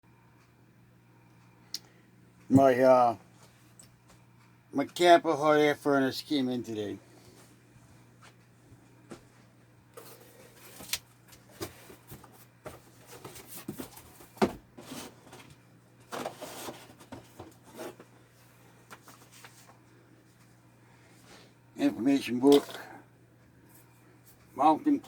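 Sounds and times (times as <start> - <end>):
faint steady hum: 0.1 - 25.0
knocks and clicks of packaging: 10.0 - 18.1.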